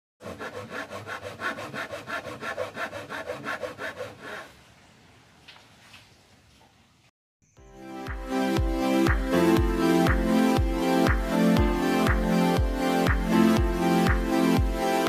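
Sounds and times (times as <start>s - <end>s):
hand saw cutting wood: 0.2s - 4.6s.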